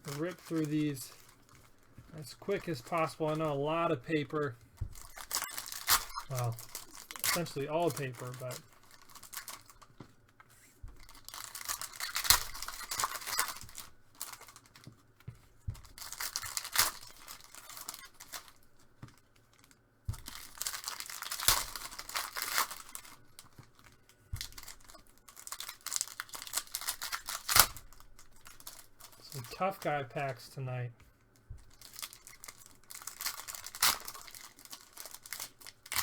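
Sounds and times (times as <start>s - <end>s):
packaging being torn open: 5.0s - 9.9s, 11.0s - 14.8s, 16.0s - 18.6s, 19.5s - 23.2s, 23.8s - 30.3s, 31.7s - 36.0s.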